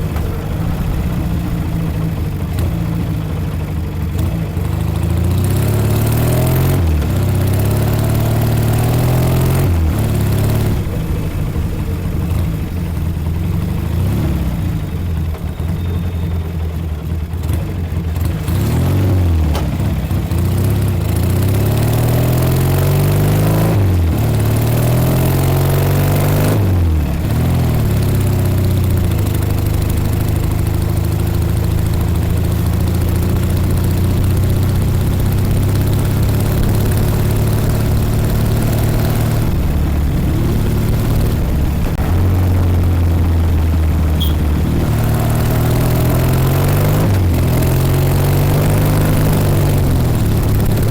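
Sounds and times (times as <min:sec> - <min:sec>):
motorcycle engine accelerating: 0:00.0 - 0:50.9.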